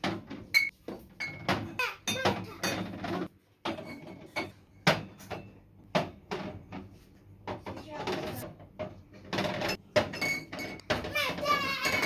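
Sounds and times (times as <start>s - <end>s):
kitchen items knocking and clattering: 0.0s - 12.0s.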